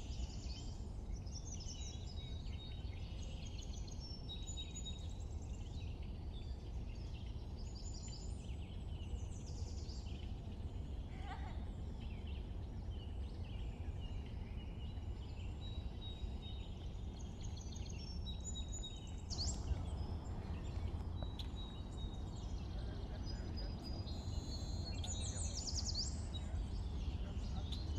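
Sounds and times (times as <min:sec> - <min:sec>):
steady low rumble: 0:05.1 - 0:27.9
birds chirping and whistling: 0:13.6 - 0:27.9.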